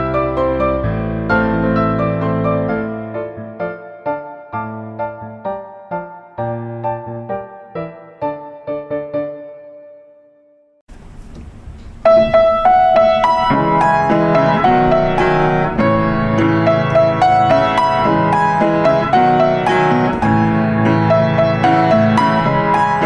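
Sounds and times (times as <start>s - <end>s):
gentle piano melody: 0.0s - 23.0s
faint hiss: 10.9s - 13.5s.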